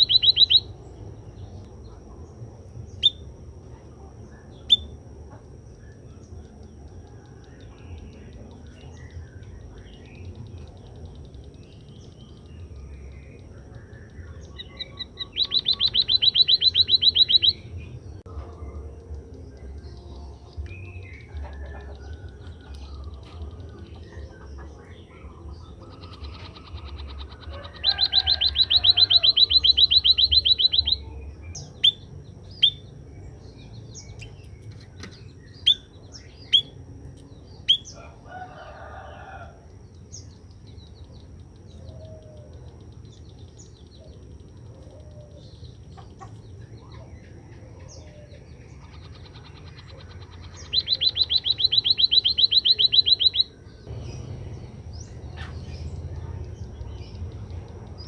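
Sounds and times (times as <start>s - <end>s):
bird trilling: 0.0s - 0.8s, 10.0s - 17.8s, 20.8s - 32.9s, 43.6s - 56.0s
bird chirping: 0.0s - 58.0s.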